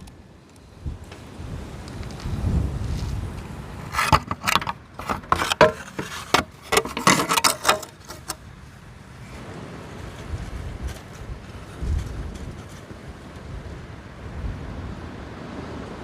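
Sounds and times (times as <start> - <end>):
metal tools clinking: 4.0 - 8.4.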